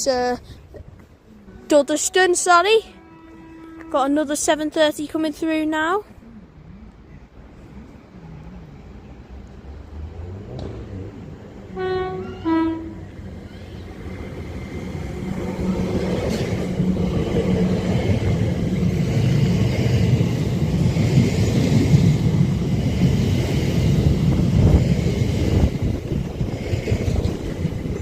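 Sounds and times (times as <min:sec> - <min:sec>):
train rumble: 0:00.0 - 0:28.0
train horn notes: 0:01.4 - 0:04.2, 0:11.7 - 0:13.2.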